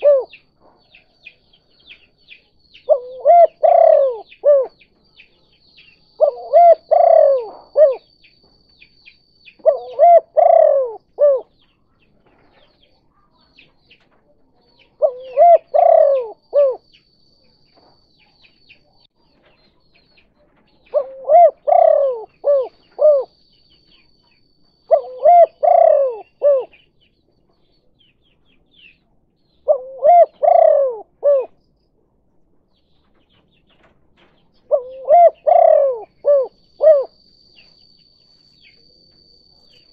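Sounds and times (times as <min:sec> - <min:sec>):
dove cooing: 0:00.0 - 0:04.9, 0:06.2 - 0:08.1, 0:09.6 - 0:11.6, 0:14.8 - 0:16.9, 0:20.6 - 0:24.1, 0:24.8 - 0:26.8, 0:29.6 - 0:31.6, 0:34.6 - 0:37.2
small birds chirping: 0:00.0 - 0:39.9.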